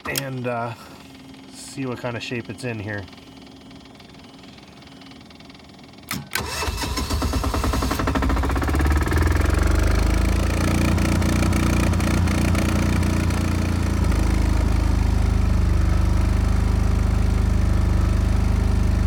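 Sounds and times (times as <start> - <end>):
diesel generator engine running: 0.0 - 19.0.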